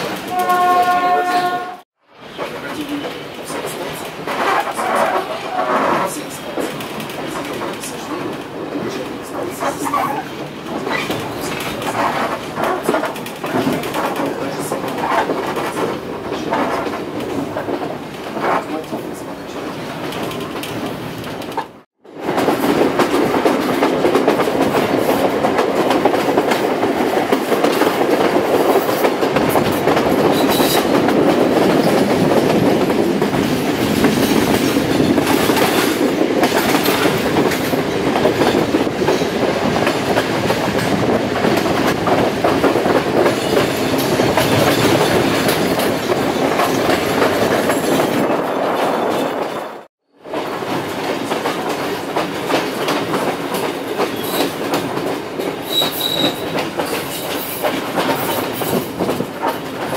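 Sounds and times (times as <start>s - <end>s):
train rumbling along track: 0.0s - 59.9s
wheels clattering over rails: 19.9s - 59.9s.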